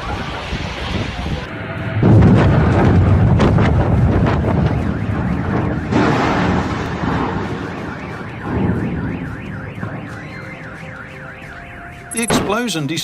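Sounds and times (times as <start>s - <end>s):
rumble after explosion: 0.0s - 10.4s
car alarm warbling: 4.0s - 13.0s.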